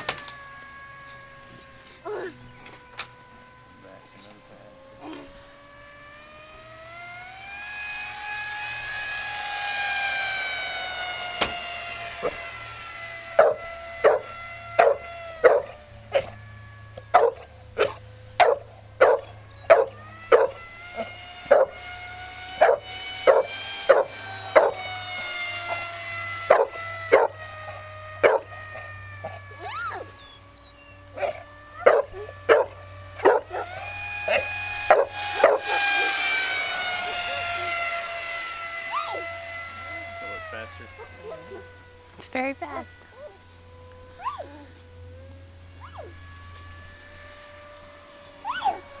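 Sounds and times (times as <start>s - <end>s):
model plane motor whine: 0.0s - 49.0s
dog barking: 13.4s - 16.3s, 17.1s - 20.6s, 21.5s - 21.7s, 22.6s - 24.8s, 26.5s - 27.4s, 28.2s - 28.5s, 31.2s - 33.7s.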